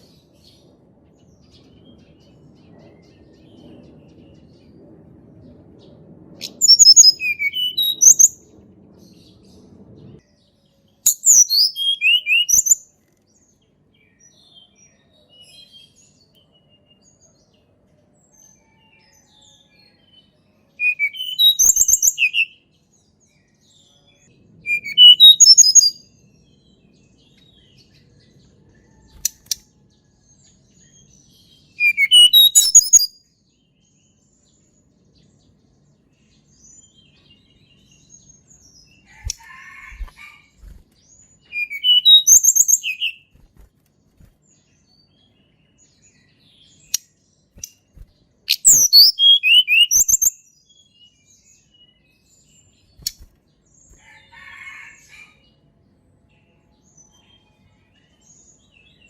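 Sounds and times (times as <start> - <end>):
songbird whistled phrases: 6.4 - 8.4, 11.1 - 12.8, 20.8 - 22.6, 24.6 - 26.0, 31.8 - 33.1, 41.5 - 43.3, 48.5 - 50.4
soft scratchy bird calls: 39.0 - 45.1.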